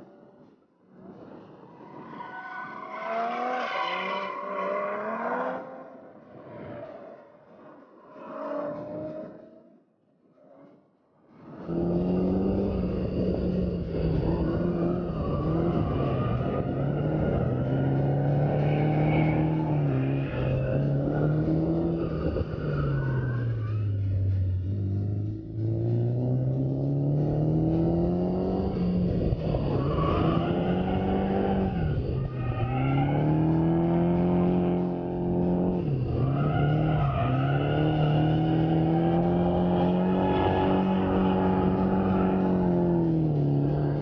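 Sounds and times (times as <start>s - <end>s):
car engine revving: 11.5s - 44.0s.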